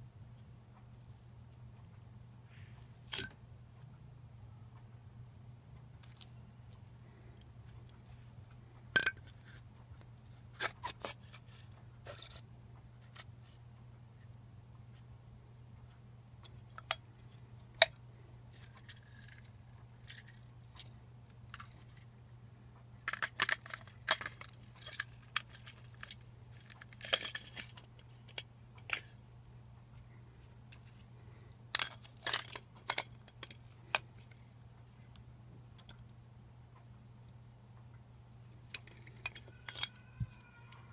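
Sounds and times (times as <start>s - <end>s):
steady low hum: 0.0s - 10.6s, 11.4s - 39.6s
small parts clicking and scraping: 0.9s - 1.4s, 2.5s - 3.9s, 6.0s - 9.7s, 10.3s - 12.4s, 13.0s - 13.6s, 16.4s - 22.1s, 23.0s - 29.2s, 30.0s - 35.2s, 35.8s - 36.1s, 38.4s - 40.9s.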